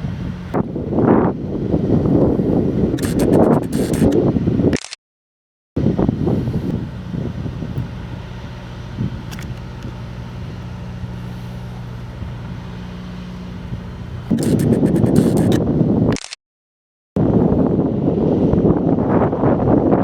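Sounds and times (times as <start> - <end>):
vehicle engine humming: 0.0 - 4.6, 5.8 - 16.1
wind buffeting microphone: 0.0 - 4.8, 5.8 - 16.2, 17.2 - 20.0.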